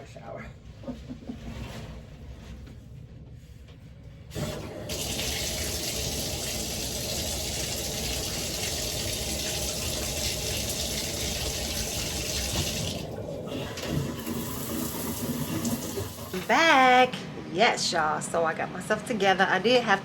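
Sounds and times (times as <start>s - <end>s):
shower water running: 4.3s - 17.0s.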